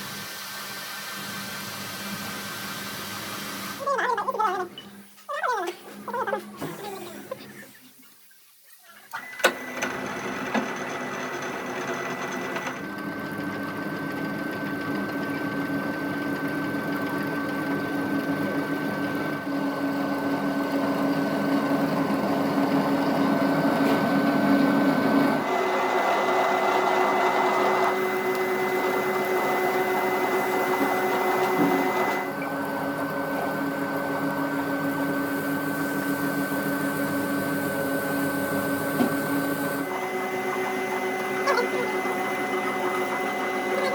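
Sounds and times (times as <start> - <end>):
workshop machinery whine: 9.2 - 43.9.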